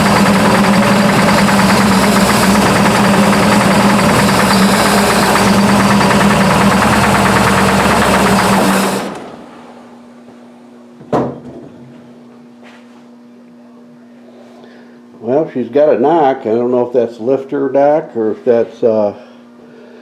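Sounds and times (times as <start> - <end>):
engine knock: 0.0 - 9.2
car engine running loudly: 0.0 - 9.3.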